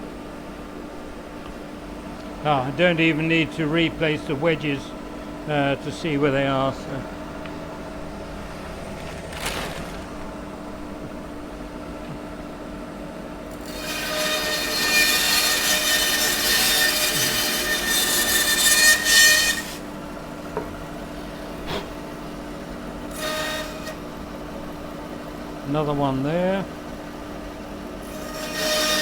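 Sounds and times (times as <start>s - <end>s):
power saw humming: 2.4s - 12.2s, 13.5s - 20.2s
saw blade cutting wood: 13.6s - 19.9s, 23.1s - 24.0s, 28.0s - 29.0s.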